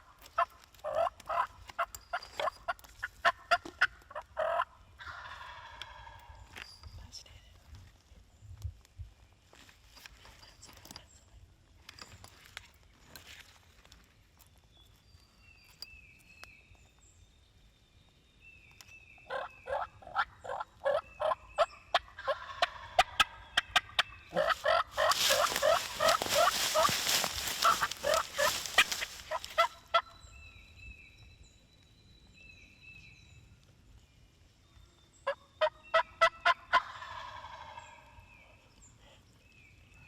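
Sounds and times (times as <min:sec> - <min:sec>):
songbirds chirping faintly: 0:00.0 - 0:40.0
turkey yelping: 0:00.4 - 0:01.5, 0:19.3 - 0:30.1, 0:35.6 - 0:37.8.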